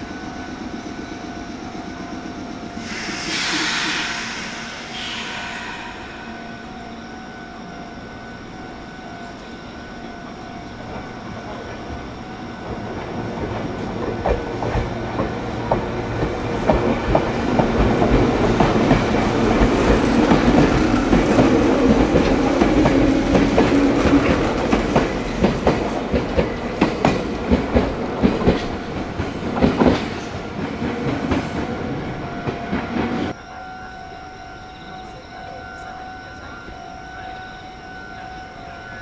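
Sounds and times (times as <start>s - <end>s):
electric train passing: 0.0s - 39.0s.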